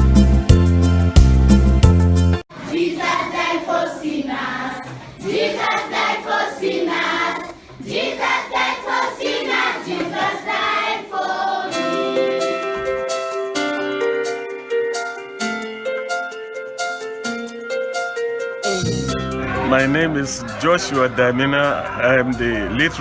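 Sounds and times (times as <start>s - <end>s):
instrumental music with keyboard notes: 0.0s - 2.4s, 11.7s - 22.7s
choir singing: 2.5s - 13.5s, 18.7s - 23.0s.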